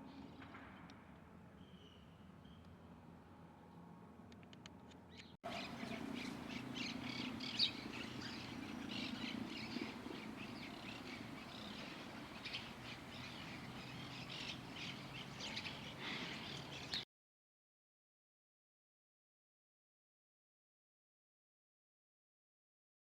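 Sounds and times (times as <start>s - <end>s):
low background hum: 0.0s - 17.0s
small birds chirping: 5.1s - 17.0s.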